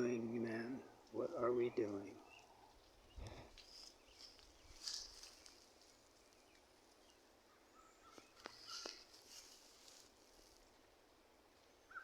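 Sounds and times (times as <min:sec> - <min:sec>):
faint bird chirps: 0:02.2 - 0:09.6, 0:11.8 - 0:12.0.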